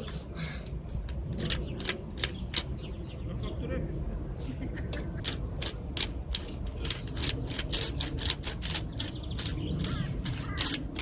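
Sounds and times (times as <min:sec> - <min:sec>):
salt grinder ratcheting clicks: 0:00.0 - 0:02.7, 0:05.2 - 0:11.0.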